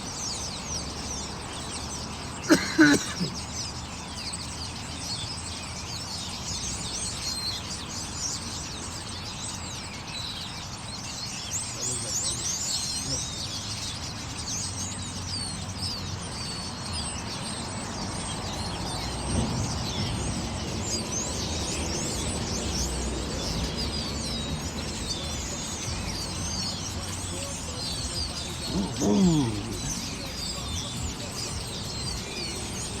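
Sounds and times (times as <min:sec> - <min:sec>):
small birds chirping: 0:00.0 - 0:33.0
loud falling bird call: 0:02.4 - 0:03.5, 0:28.4 - 0:30.2.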